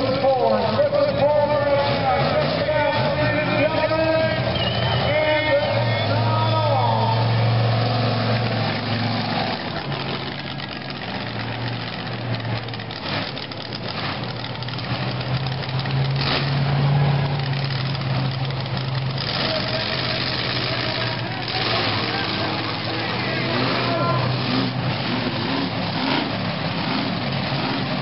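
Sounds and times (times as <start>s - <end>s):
monster truck engine running: 0.0s - 28.0s.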